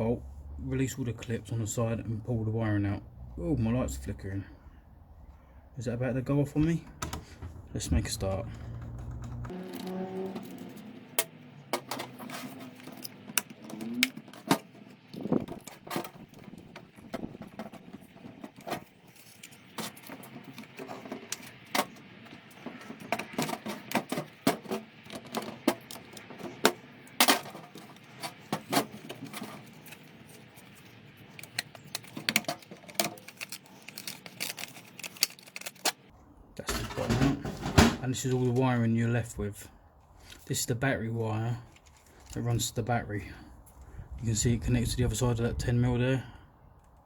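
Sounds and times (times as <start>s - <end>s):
plastic fuse box clicks and rattles: 19.8s - 30.1s, 31.3s - 36.1s.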